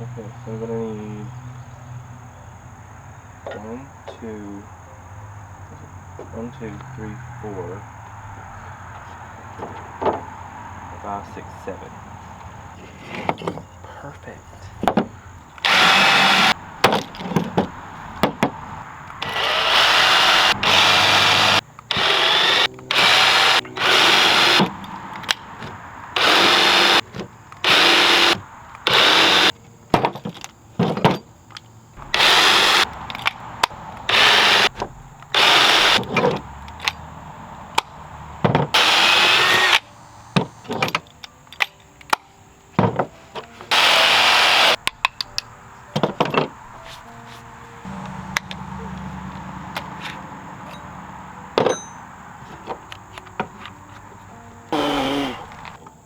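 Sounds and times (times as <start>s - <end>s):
power drill drilling into wood: 15.6s - 16.6s, 19.2s - 24.7s, 26.2s - 27.0s, 27.6s - 29.5s, 32.0s - 32.9s, 34.1s - 36.1s, 38.8s - 39.8s, 43.7s - 44.8s, 54.7s - 55.7s.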